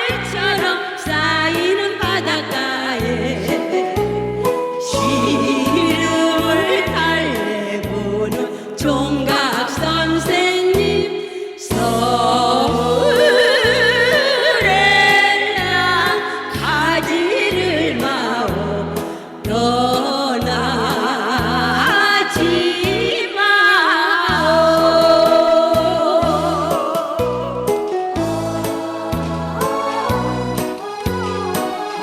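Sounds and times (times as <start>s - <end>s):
women singing with vibrato: 0.0s - 32.0s
instrumental accompaniment: 24.6s - 32.0s.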